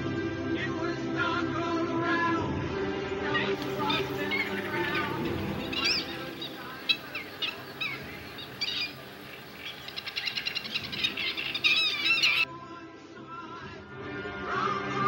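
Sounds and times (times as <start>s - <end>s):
birds chirping and trilling: 3.6s - 12.5s
low steady drone: 3.6s - 12.5s.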